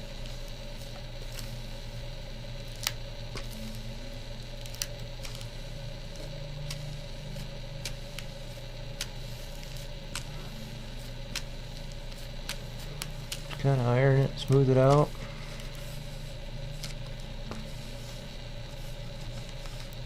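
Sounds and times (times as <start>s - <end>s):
plastic film crackling and clicking: 0.0s - 20.0s
steady low hum: 0.0s - 20.0s.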